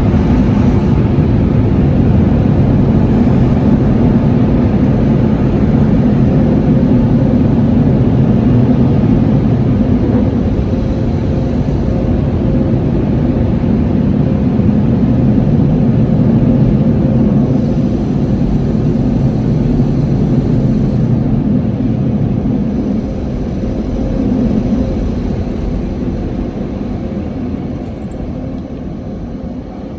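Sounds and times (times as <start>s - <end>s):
faint steady hum: 0.0s - 29.9s
car wash rushing noise: 2.0s - 11.4s, 22.2s - 29.0s.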